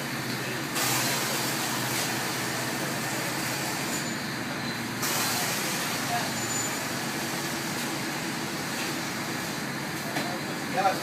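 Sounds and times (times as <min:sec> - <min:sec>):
traffic noise with low hum: 0:00.0 - 0:11.0
loud hiss: 0:00.6 - 0:04.0, 0:04.9 - 0:09.5.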